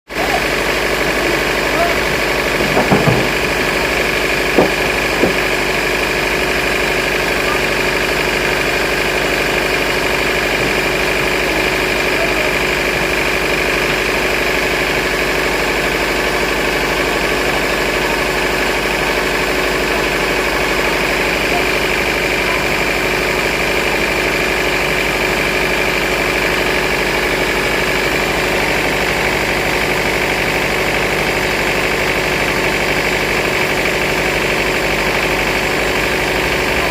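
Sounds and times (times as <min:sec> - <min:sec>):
sawmill machinery humming and whining: 0:00.1 - 0:36.9
sharp knocks: 0:02.4 - 0:05.8.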